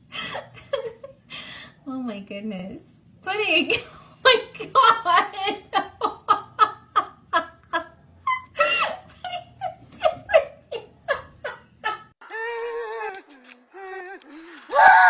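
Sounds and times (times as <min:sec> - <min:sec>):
person wavering cry: 0:12.2 - 0:15.0.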